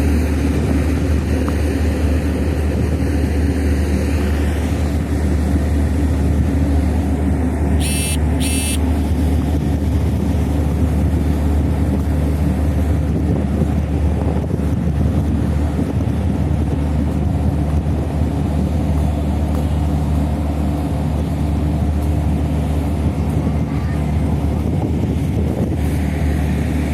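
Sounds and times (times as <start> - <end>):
heavy engines droning: 0.0 - 26.9
short high electronic beeps: 7.8 - 8.8.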